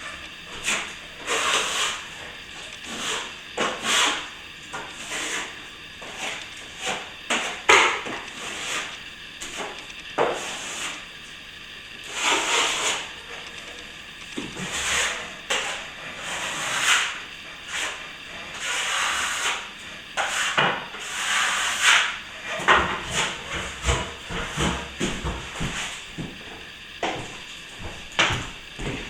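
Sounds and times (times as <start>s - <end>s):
trowel scraping wet plaster: 0.5s - 2.0s, 2.8s - 11.0s, 12.1s - 13.1s, 14.6s - 26.0s.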